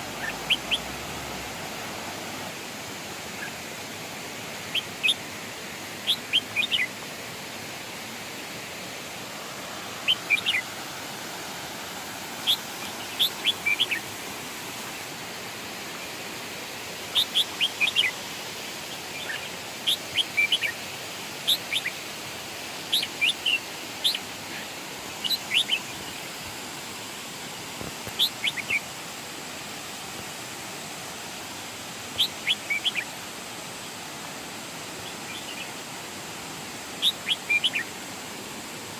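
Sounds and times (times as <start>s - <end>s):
falling water rushing: 0.0s - 38.9s
songbird whistling: 37.0s - 37.9s.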